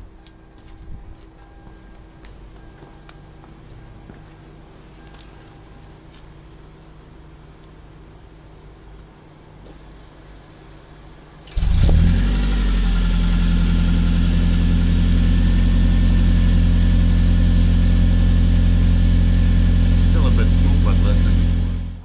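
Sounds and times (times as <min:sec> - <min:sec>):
car engine starting and idling: 0:10.4 - 0:22.0.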